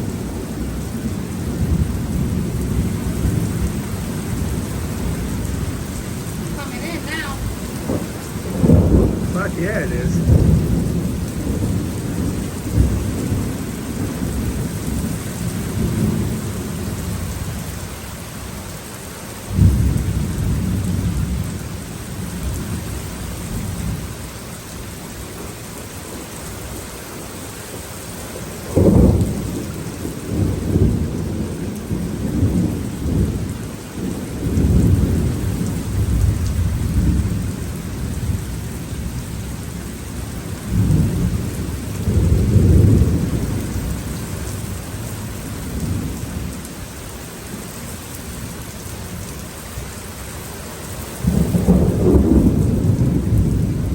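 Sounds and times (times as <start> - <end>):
steady rain: 0.0 - 53.9
loud thunder claps: 6.5 - 14.5, 51.2 - 53.9
rolling thunder: 7.4 - 9.4, 10.1 - 16.7, 40.6 - 44.1, 51.2 - 53.9.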